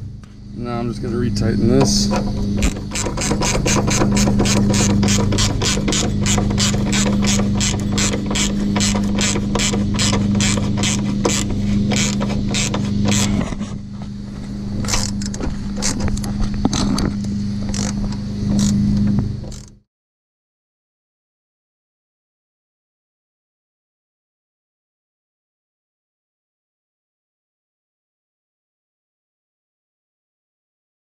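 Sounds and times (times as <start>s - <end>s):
steady low hum: 0.0s - 19.8s
hand ratchet clicking: 1.8s - 13.5s, 14.8s - 18.8s, 19.5s - 19.7s.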